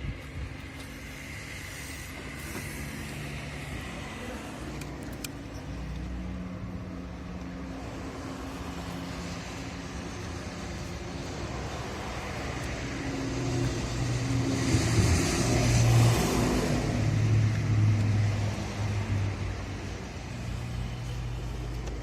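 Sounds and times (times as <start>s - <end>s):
hiss: 0.8s - 4.5s.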